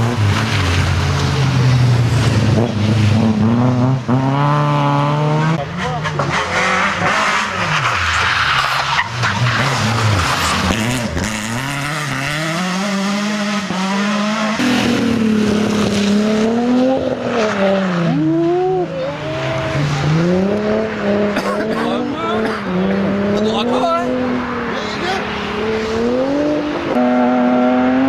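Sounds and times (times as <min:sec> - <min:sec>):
rally car engines revving: 0:00.0 - 0:28.0.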